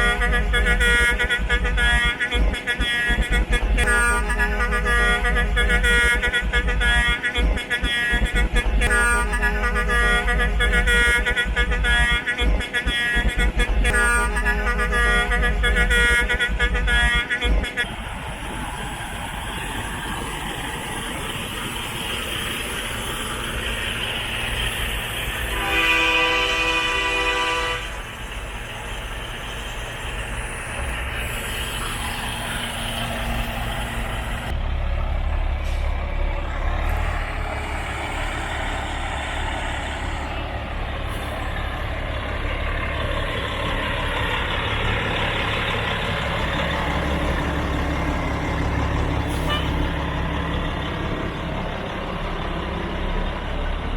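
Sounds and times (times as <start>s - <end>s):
air horn blast: 0.0s - 18.0s, 24.4s - 28.2s, 30.0s - 34.6s, 49.2s - 50.1s
diesel trucks rumbling past: 0.0s - 53.9s.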